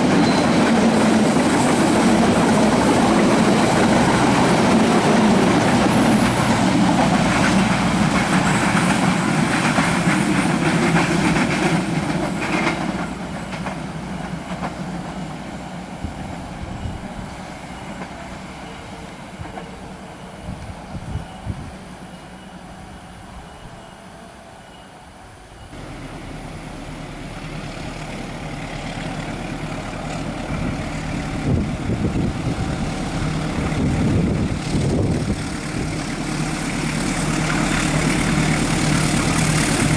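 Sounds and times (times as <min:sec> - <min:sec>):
train wheel clatter: 0:00.0 - 0:23.2, 0:27.1 - 0:39.9
passenger train passing: 0:00.0 - 0:39.9
low engine hum: 0:25.8 - 0:39.9.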